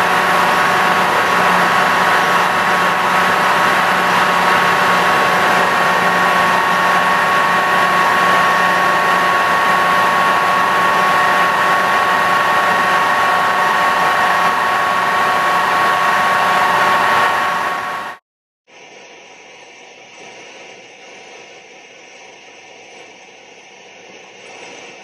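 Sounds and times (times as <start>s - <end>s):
low machine hum: 0.0s - 18.2s
milling machine whine: 0.0s - 18.2s.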